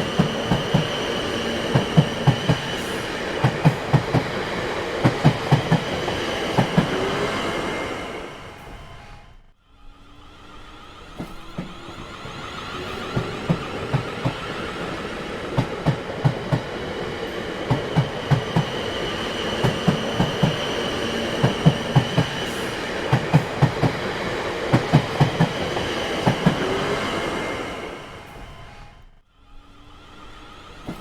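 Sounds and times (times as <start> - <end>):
train wheels clacking over rail joints: 0.0 - 7.1, 11.1 - 26.8
train rumble: 0.0 - 31.0.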